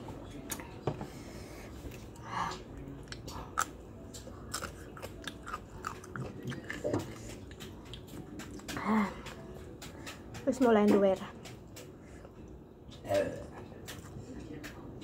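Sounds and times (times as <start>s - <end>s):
person crunching food: 3.0s - 8.7s.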